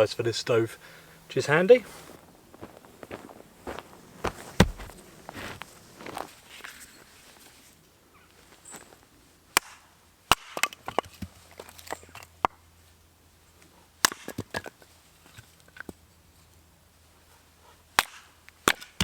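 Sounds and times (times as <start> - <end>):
firewood cracking and knocking: 4.3 - 5.4.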